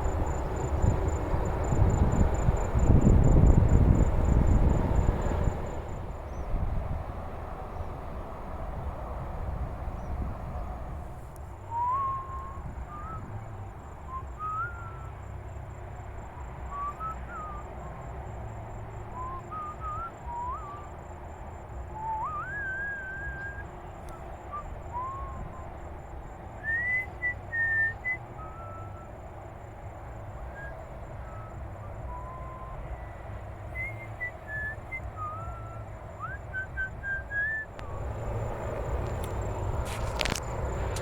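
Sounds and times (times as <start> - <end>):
low rumble: 0.0 - 13.7, 37.7 - 41.0
sliding whistled notes: 11.7 - 13.3, 33.7 - 41.0.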